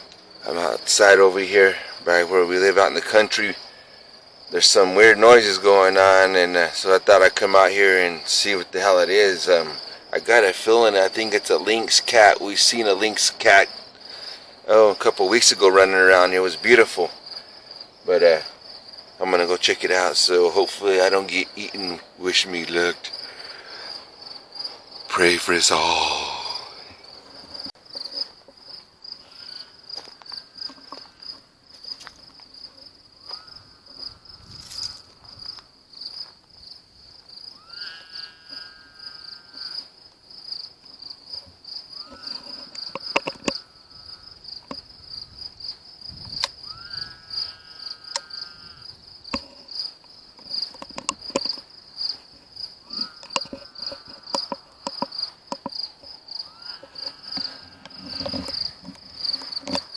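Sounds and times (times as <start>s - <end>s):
crickets chirping: 0.0s - 59.9s
short rising animal call: 37.5s - 39.9s, 46.6s - 48.8s, 56.3s - 58.3s.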